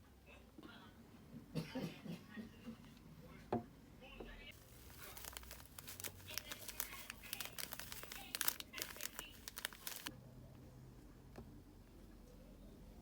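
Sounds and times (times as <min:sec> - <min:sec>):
wrapping crinkling and crackling: 0:04.5 - 0:10.1.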